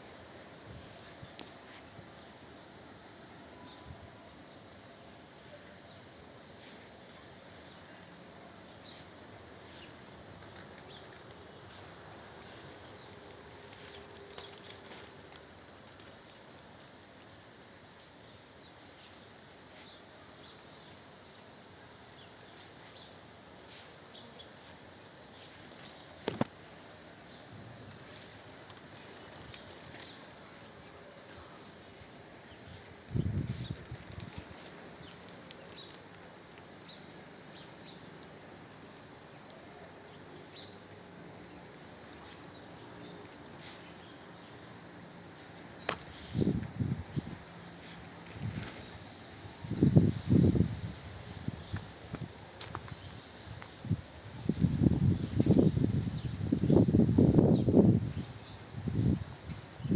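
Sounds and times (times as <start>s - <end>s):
steady background hiss: 0.0s - 59.9s
small birds chirping: 5.0s - 15.0s, 27.2s - 59.9s.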